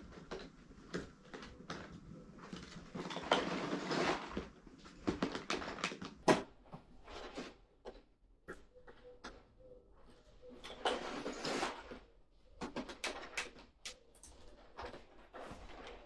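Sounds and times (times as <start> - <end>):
handling clicks and knocks: 13.0 - 14.4.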